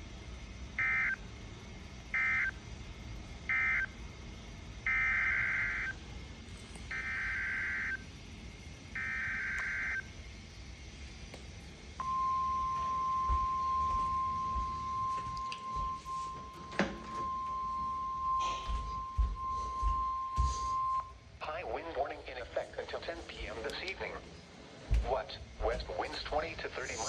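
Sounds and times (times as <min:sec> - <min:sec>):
steady warning alarm tone: 0:00.7 - 0:01.3, 0:02.0 - 0:04.0, 0:04.8 - 0:10.3, 0:12.0 - 0:21.4.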